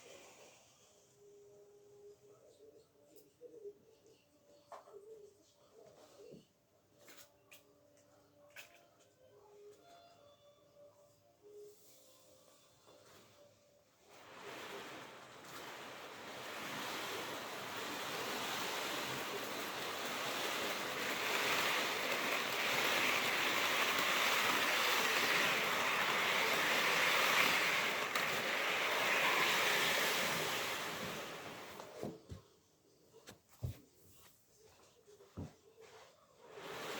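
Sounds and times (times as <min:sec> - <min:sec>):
model train rolling on track: 0:14.1 - 0:32.0.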